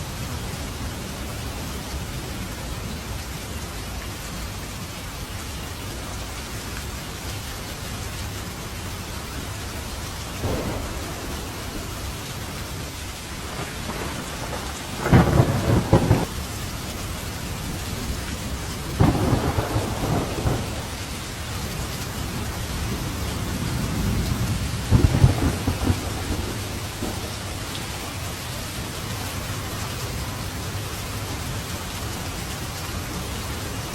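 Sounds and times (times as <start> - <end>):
steady rain: 0.0 - 33.9
thunder cracks and rolls: 10.4 - 16.4, 18.9 - 27.8.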